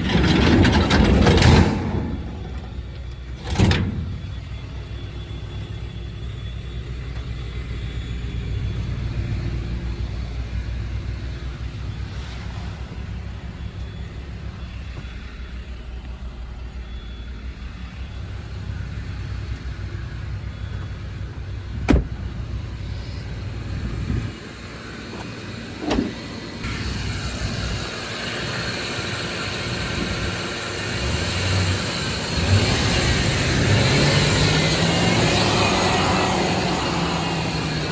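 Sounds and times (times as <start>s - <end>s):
pickup engine idling: 0.0s - 37.9s
rough engine noise: 0.0s - 37.9s
thump: 21.8s - 22.2s, 25.2s - 26.2s.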